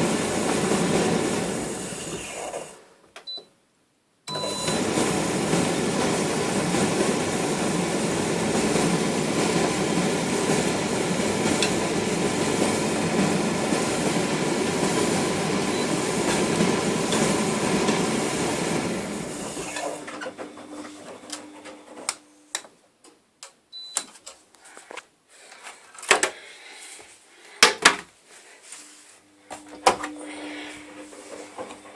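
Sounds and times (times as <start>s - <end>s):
laundry machine running: 0.0s - 2.9s, 4.3s - 22.4s, 29.0s - 31.9s.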